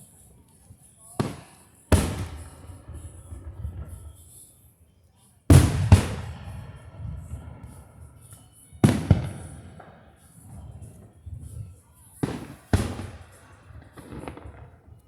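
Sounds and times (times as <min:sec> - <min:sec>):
fireworks booming: 0:01.2 - 0:04.2, 0:05.5 - 0:07.8, 0:12.2 - 0:14.8.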